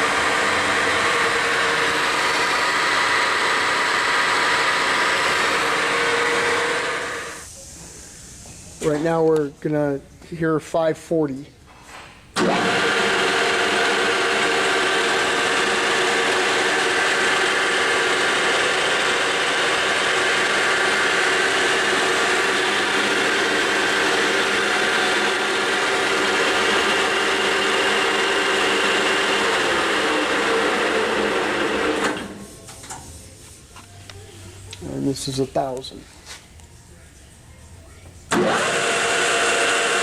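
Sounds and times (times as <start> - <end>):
lathe running: 0.0 - 7.4, 12.4 - 32.4, 38.3 - 40.0.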